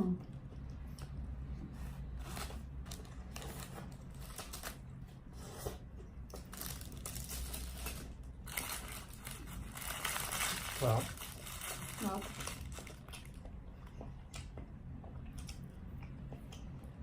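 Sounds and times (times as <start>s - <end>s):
steady low hum: 0.0s - 17.0s
wrapping paper crinkling: 2.2s - 4.8s, 6.4s - 13.2s.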